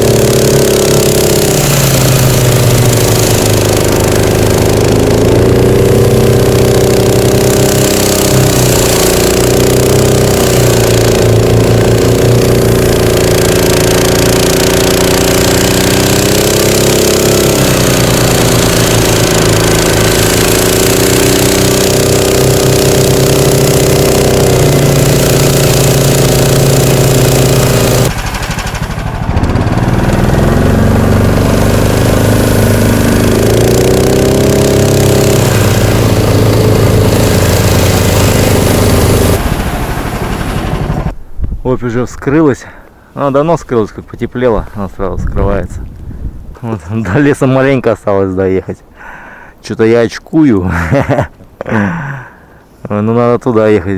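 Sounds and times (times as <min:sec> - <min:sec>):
engine revving under load: 0:00.0 - 0:41.2
track churning through snow: 0:00.0 - 0:53.9.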